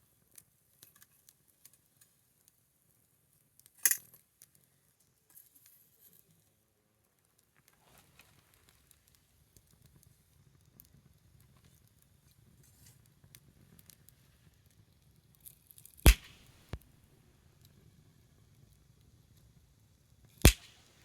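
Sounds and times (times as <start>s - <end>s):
loud sharp pop: 16.1s - 16.8s, 20.5s - 21.0s
wood fire crackling: 16.1s - 16.8s, 20.4s - 21.0s.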